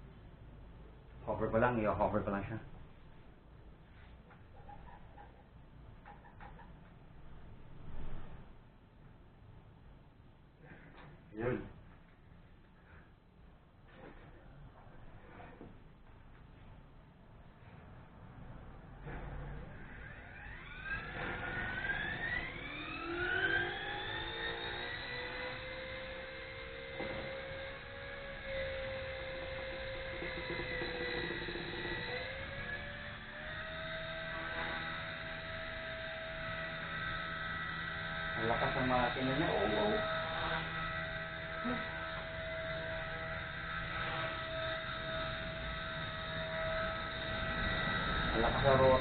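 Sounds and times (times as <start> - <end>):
toy helicopter motor whine: 19.1 - 49.0.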